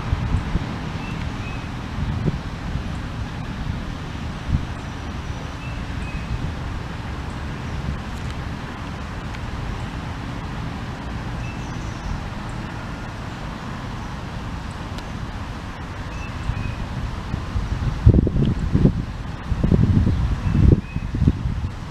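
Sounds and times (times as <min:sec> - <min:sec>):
distant traffic: 0:00.0 - 0:21.9
wind: 0:00.0 - 0:21.9
faint bird chirp: 0:11.4 - 0:12.8.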